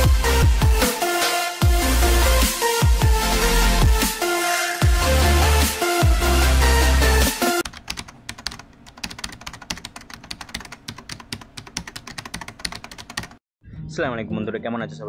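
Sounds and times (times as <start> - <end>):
electronic music with heavy bass: 0.0 - 7.6
computer keyboard typing clicks: 7.6 - 13.4.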